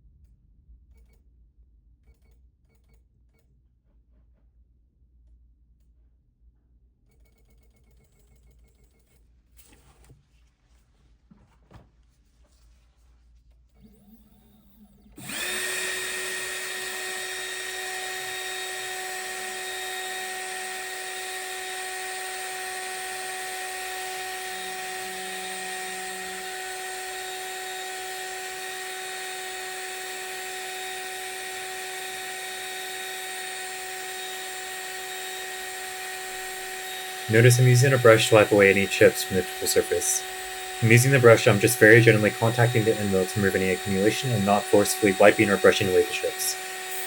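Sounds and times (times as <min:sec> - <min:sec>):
mill spindle whine: 0:15.1 - 0:47.0.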